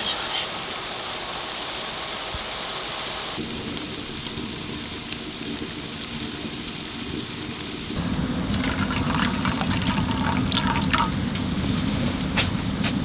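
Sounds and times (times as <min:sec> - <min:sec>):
snow pattering on tent fabric: 0:02.1 - 0:08.0.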